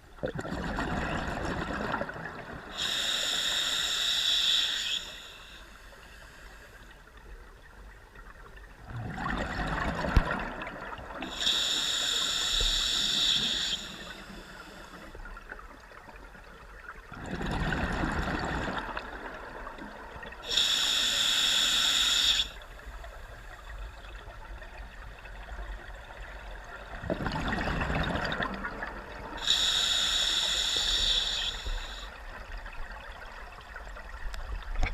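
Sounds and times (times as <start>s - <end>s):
hiss with high whistling: 2.8s - 5.7s, 11.3s - 14.8s, 20.4s - 22.6s, 29.4s - 32.2s.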